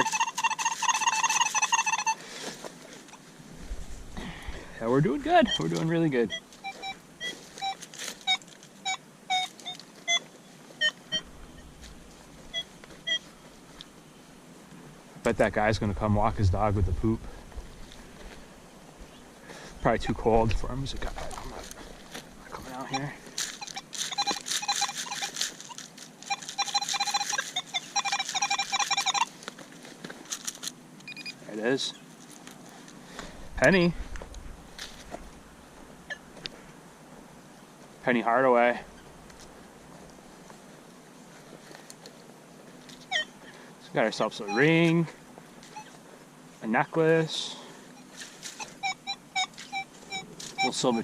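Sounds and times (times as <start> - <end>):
metal detector beeps: 0.0 - 2.2, 5.3 - 11.8, 12.5 - 13.3, 22.7 - 29.4, 31.0 - 31.5, 43.0 - 43.4, 44.2 - 46.0, 47.9 - 51.0
scraping and crunching clicks: 22.9 - 31.2.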